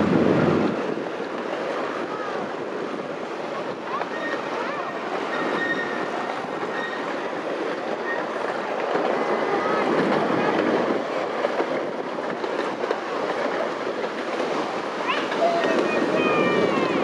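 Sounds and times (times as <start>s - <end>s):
miniature train rattling rumble: 0.0s - 17.0s
faint high squeal: 5.3s - 6.1s.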